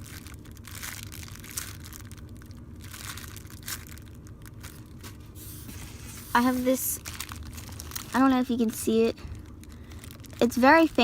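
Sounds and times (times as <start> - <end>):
foam toy rustling and crinkling: 0.0 - 11.0
scratchy brushes: 5.1 - 7.0.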